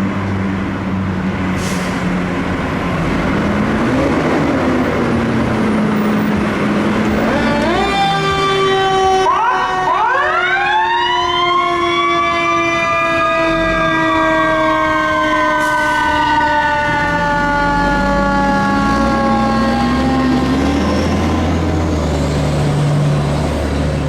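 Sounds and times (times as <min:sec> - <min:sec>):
truck engine rumbling: 0:00.0 - 0:10.7, 0:11.6 - 0:24.0
steady siren tone sliding lower: 0:03.6 - 0:23.7
fire engine siren winding: 0:07.0 - 0:21.6.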